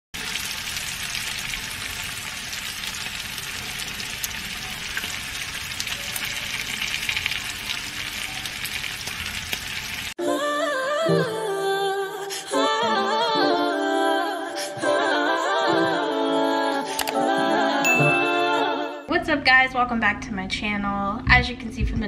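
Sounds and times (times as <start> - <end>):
vegetables sizzling in a skillet: 0.2 - 10.2
hummed music: 10.2 - 19.4.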